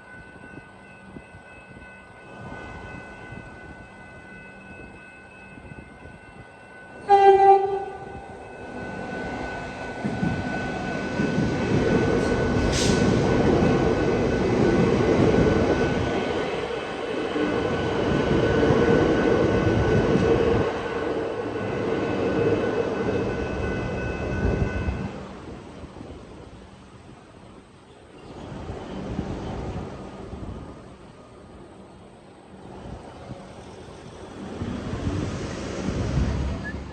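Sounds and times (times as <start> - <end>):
steady high tone: 0.0 - 25.1
train horn blast: 7.0 - 8.4.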